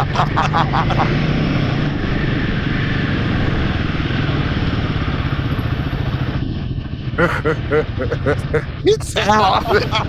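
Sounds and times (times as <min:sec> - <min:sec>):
motorcycle engine running: 0:00.0 - 0:07.2
wind and road noise: 0:00.0 - 0:10.0.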